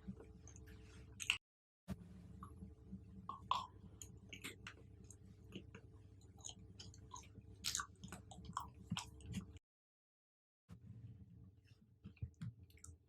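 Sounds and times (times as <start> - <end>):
chewing fruit crunching: 3.3 - 9.6.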